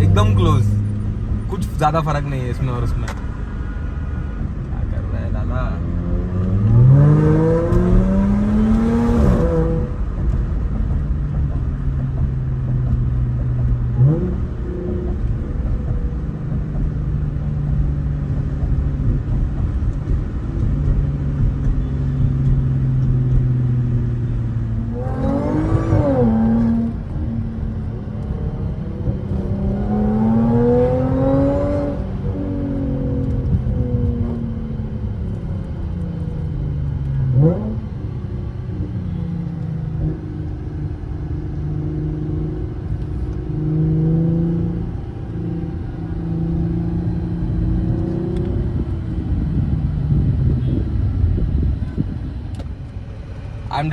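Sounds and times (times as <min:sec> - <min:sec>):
car engine accelerating: 0:00.0 - 0:53.9.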